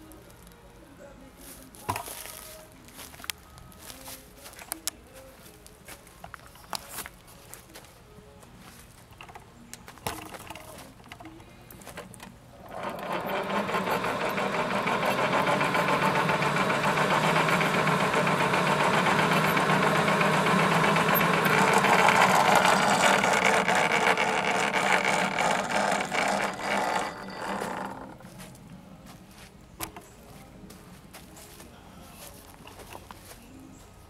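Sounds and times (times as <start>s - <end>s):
small machine rattling: 10.0s - 28.3s.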